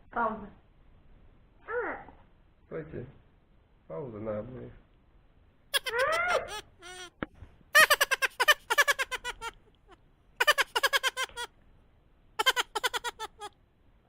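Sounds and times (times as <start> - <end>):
child giggling: 5.8 - 7.1, 7.8 - 11.5, 12.4 - 13.5.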